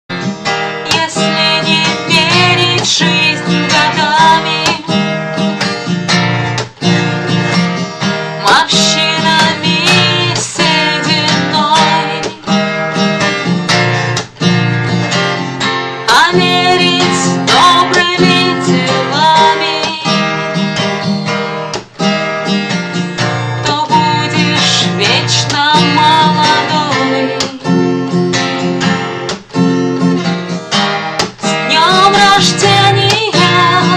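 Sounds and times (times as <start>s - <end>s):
acoustic guitar strumming: 0.1s - 33.9s
woman singing: 0.8s - 5.2s, 8.4s - 12.7s, 16.1s - 20.8s, 23.6s - 28.4s, 31.4s - 33.9s.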